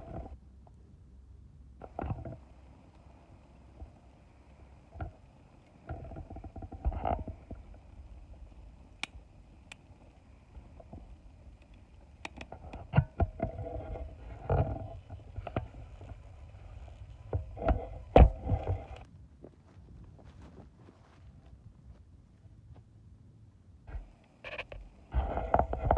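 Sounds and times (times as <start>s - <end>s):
wood fire crackling and popping: 2.4s - 13.4s.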